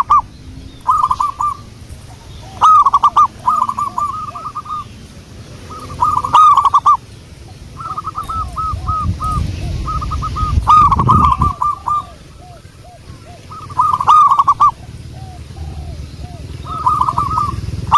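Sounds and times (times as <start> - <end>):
dove cooing: 0.0 - 17.9.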